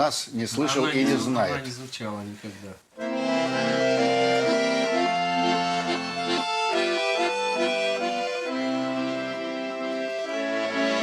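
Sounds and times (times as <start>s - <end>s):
accordion playing slow melody: 3.0s - 11.0s.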